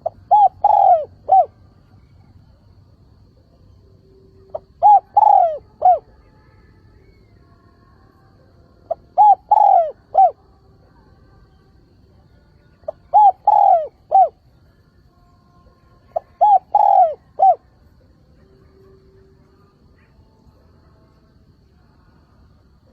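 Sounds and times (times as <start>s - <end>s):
dove cooing: 0.0s - 1.6s, 4.4s - 6.1s, 8.9s - 10.4s, 12.9s - 14.4s, 16.1s - 17.7s.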